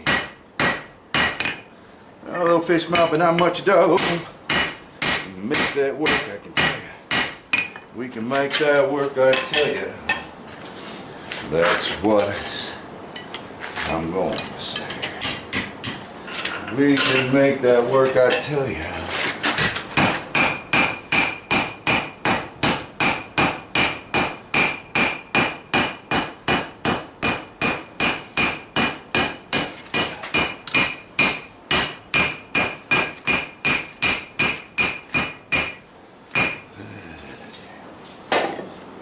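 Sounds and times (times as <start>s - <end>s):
hammer striking steel on anvil: 0.0s - 1.7s, 2.9s - 7.8s, 19.6s - 35.8s, 36.4s - 36.6s.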